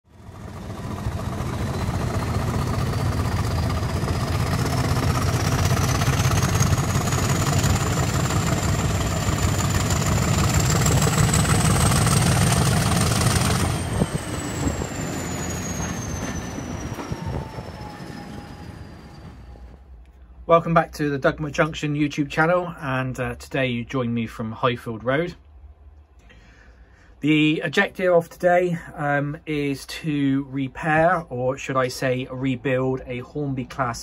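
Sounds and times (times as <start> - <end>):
train whine: 0.1 - 21.6
train rumbling: 0.1 - 22.8.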